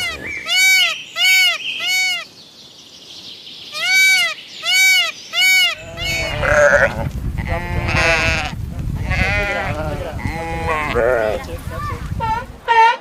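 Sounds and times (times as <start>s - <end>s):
background noise: 0.0s - 13.0s
sheep bleating: 3.8s - 11.4s.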